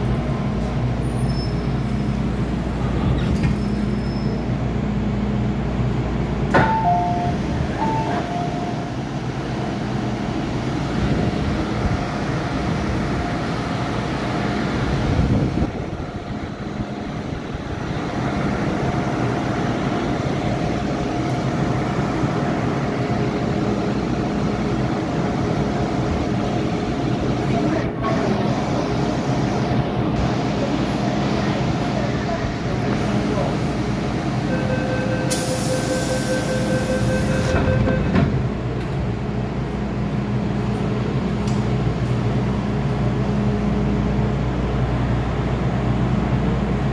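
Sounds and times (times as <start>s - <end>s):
train equipment whine: 0.0s - 46.9s
train rumbling: 0.0s - 46.9s
short beeping tones: 6.6s - 8.9s, 34.5s - 38.1s.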